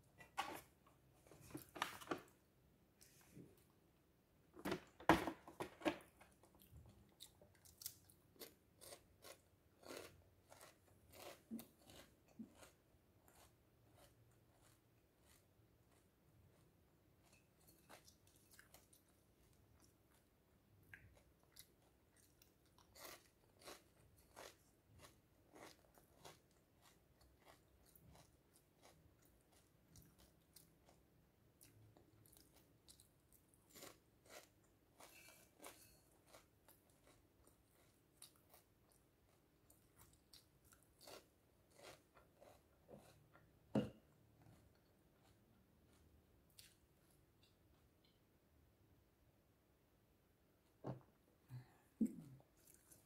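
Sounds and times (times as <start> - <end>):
crisps being chewed: 6.2 - 43.5.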